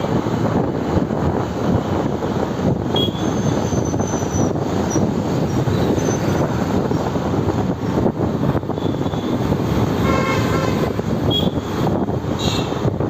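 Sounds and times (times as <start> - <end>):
wind and road noise: 0.0 - 13.0
vehicle horn honking: 8.8 - 11.6.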